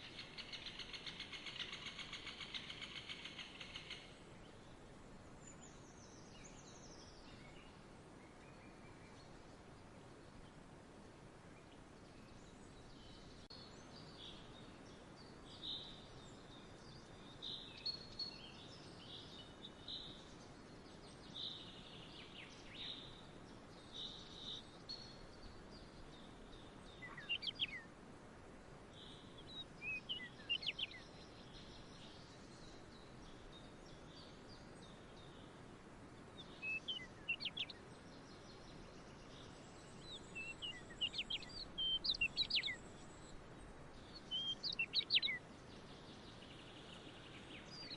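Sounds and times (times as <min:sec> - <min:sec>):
faint outdoor background hiss: 0:00.0 - 0:47.9
birds chirping: 0:11.5 - 0:28.0, 0:28.7 - 0:47.9.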